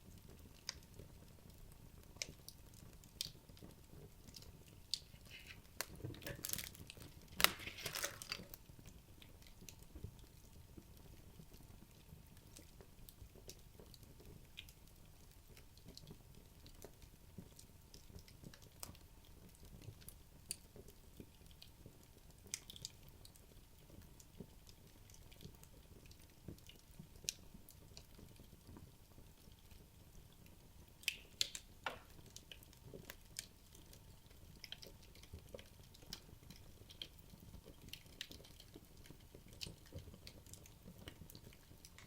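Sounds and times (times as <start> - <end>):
fire crackling and popping: 0.0 - 42.0
soft flame noise: 2.0 - 8.9.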